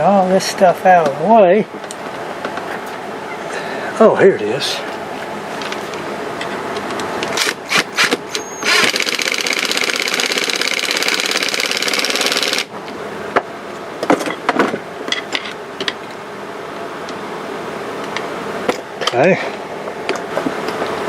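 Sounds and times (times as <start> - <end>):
small motor tool buzzing: 7.4 - 12.7.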